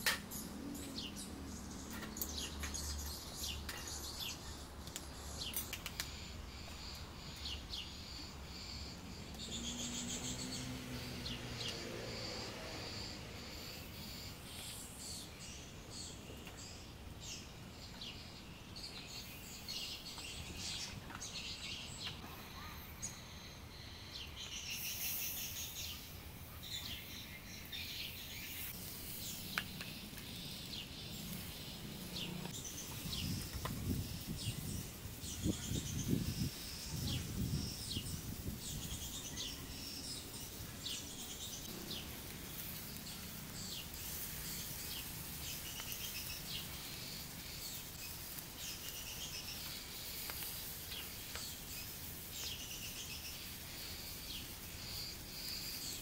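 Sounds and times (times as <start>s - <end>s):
outdoor hiss: 0.0s - 56.0s
small birds chirping: 0.0s - 56.0s.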